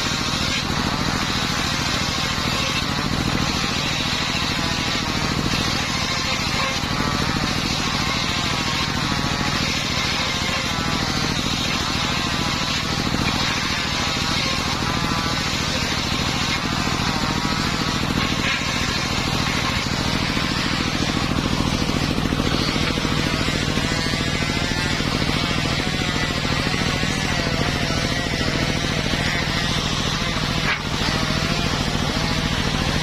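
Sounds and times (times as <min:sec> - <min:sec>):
circular saw engine running: 0:00.0 - 0:33.0.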